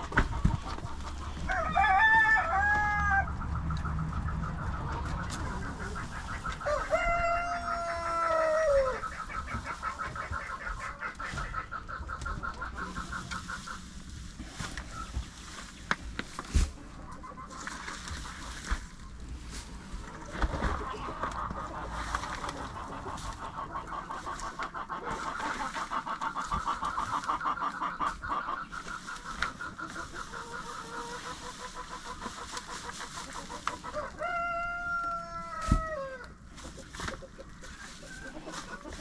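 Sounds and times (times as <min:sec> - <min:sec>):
rooster crowing: 0:01.4 - 0:03.4, 0:06.6 - 0:09.0, 0:33.9 - 0:36.2.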